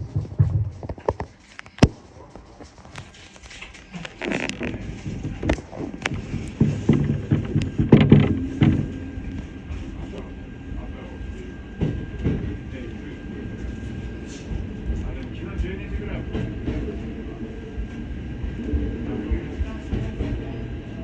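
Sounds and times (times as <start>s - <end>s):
knocks and clatters: 0.0s - 3.1s, 4.2s - 9.5s
electric train interior hum: 0.0s - 21.0s.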